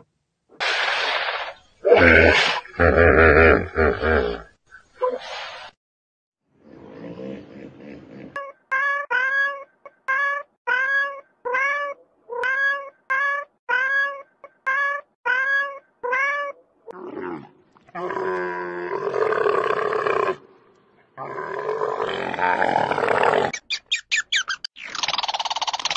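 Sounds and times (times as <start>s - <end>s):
cat meowing: 8.7s - 16.6s.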